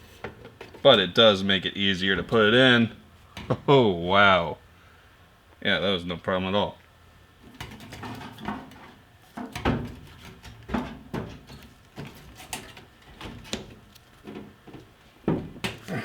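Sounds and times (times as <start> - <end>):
plastic parts knocking and rattling: 7.4 - 15.9.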